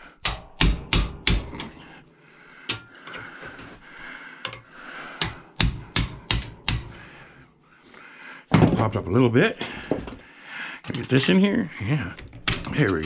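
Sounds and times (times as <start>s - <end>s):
hammer knocking on metal: 0.2s - 1.8s, 5.2s - 7.0s.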